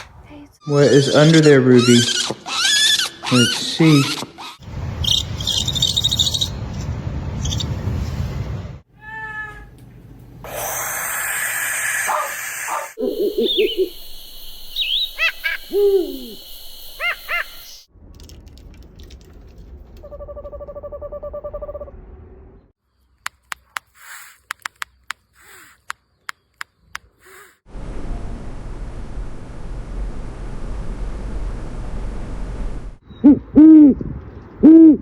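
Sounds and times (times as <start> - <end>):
owl calls: 0.6 - 6.6, 10.5 - 17.8, 25.4 - 25.9, 27.2 - 27.6
owl trill: 1.0 - 6.6, 7.4 - 7.7, 10.5 - 17.9.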